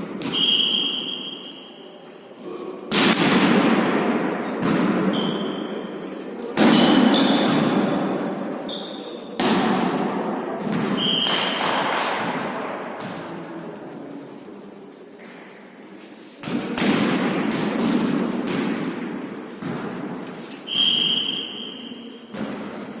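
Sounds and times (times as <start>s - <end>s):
volleyball smacks echoing: 2.9s - 4.0s, 9.4s - 13.3s, 16.4s - 20.2s
shoe squeaks: 5.1s - 7.4s, 8.6s - 9.3s, 20.5s - 23.0s.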